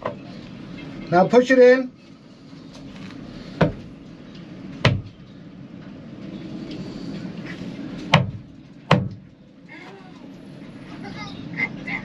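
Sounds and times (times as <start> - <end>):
steady low hum: 0.0 - 12.0
knocks against boat hull: 4.8 - 5.1, 8.1 - 9.2.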